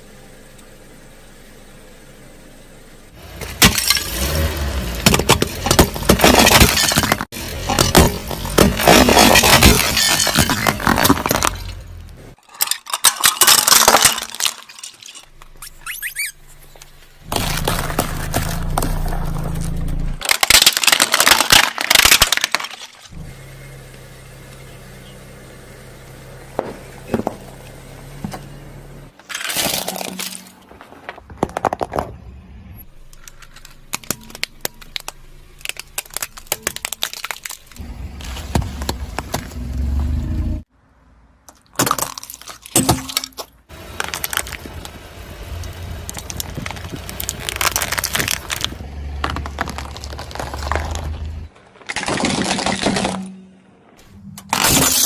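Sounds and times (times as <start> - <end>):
low car rumble: 0.0 - 12.4, 15.2 - 20.2, 23.1 - 29.3, 29.9 - 41.5, 43.6 - 51.9
tyre crushing brittle objects: 3.2 - 23.2, 29.2 - 32.2, 32.9 - 40.1, 41.5 - 53.5, 54.4 - 55.0.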